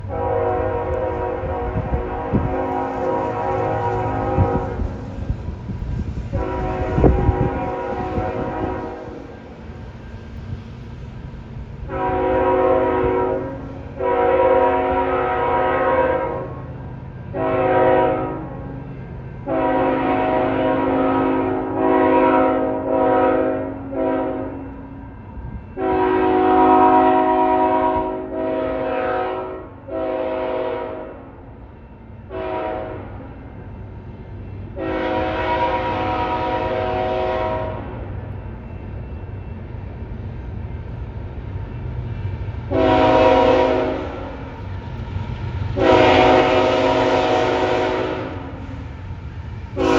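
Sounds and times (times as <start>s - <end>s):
locomotive air horn blasts: 0.0s - 5.2s, 6.3s - 9.4s, 11.9s - 16.6s, 17.3s - 18.7s, 19.4s - 24.7s, 25.8s - 31.3s, 32.3s - 33.3s, 34.8s - 38.0s, 42.7s - 44.4s, 45.8s - 48.7s
passing train rumble: 0.0s - 49.9s.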